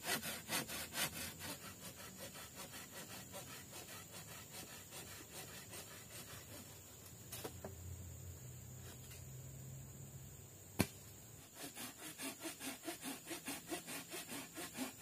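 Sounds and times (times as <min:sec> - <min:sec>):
saw cutting wood: 0:00.0 - 0:06.8, 0:11.4 - 0:15.0.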